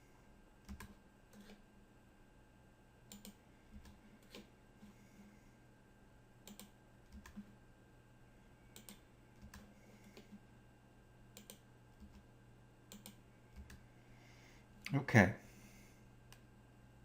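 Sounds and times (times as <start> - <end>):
low steady hum: 0.0 - 17.0
mouse and keyboard clicks: 3.1 - 4.5, 6.4 - 7.4, 11.4 - 12.2, 12.9 - 13.8.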